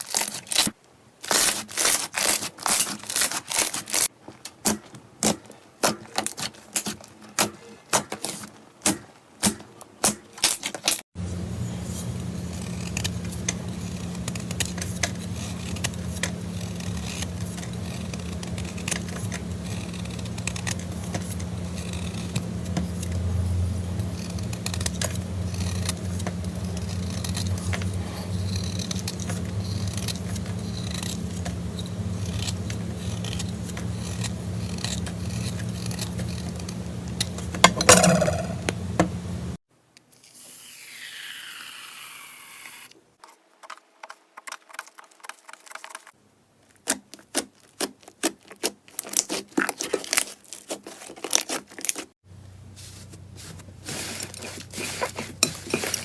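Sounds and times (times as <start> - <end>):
steady low hum: 11.2 - 39.6.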